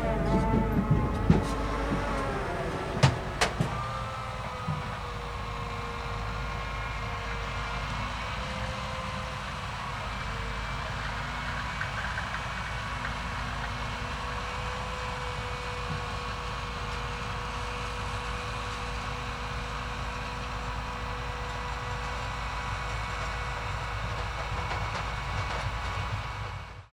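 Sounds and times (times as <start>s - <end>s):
machine whine: 0.0s - 7.2s
harvester engine drone: 0.0s - 26.9s.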